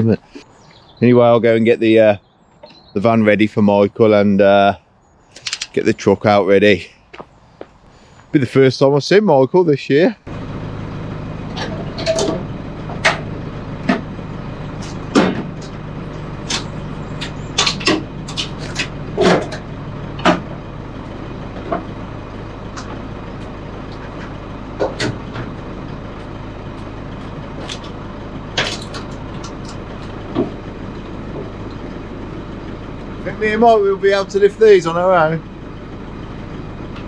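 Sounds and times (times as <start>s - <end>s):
vehicle engine idling: 0.0s - 37.0s
clunks and knocks: 11.5s - 20.7s, 21.4s - 32.0s.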